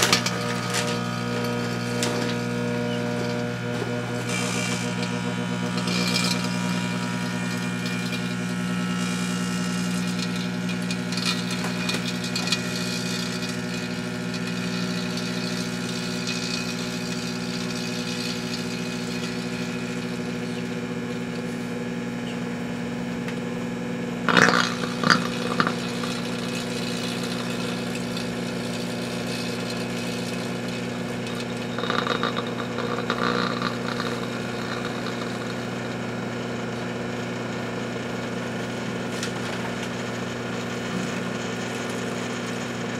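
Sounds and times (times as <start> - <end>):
microwave oven humming: 0.0 - 42.9.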